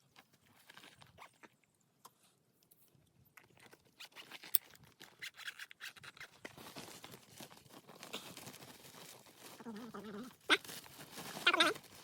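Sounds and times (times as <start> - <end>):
scratchy rustling and scraping: 3.4 - 12.0.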